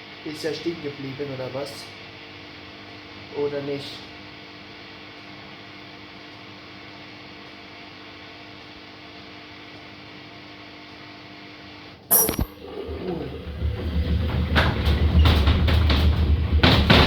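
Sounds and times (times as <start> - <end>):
washing machine humming: 12.1 - 17.0.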